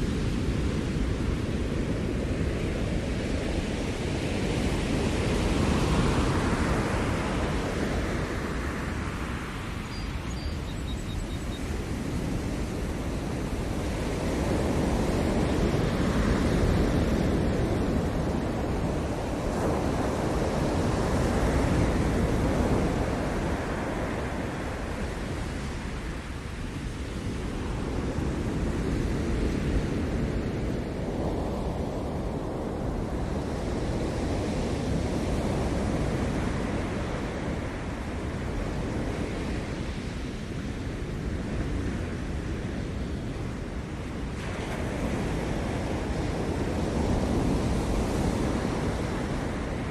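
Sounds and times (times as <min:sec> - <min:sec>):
ocean surf breaking: 0:42.0 - 0:49.9.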